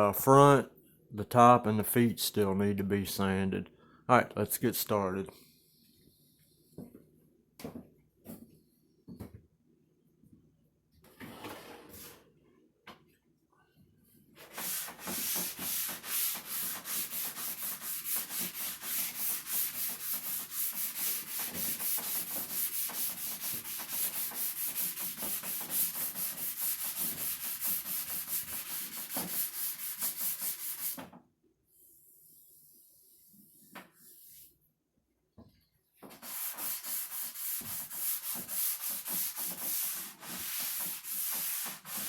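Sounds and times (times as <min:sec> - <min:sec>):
sandpaper rubbing on wood: 0:14.4 - 0:31.0, 0:36.1 - 0:42.0.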